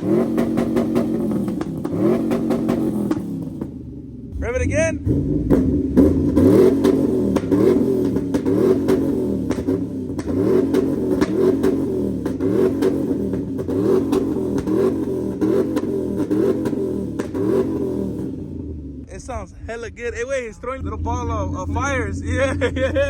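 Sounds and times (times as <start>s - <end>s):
exhaust pops and crackles: 0.0s - 23.0s
truck engine revving: 0.0s - 23.0s.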